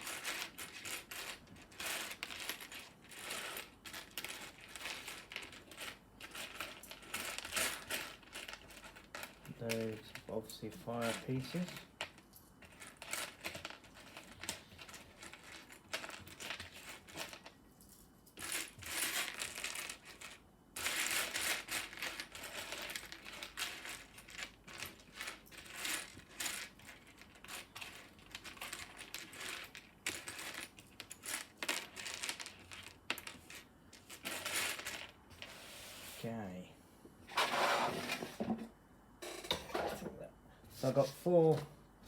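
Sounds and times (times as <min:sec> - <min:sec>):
plastic pieces clicking and clattering: 0:18.4 - 0:35.2.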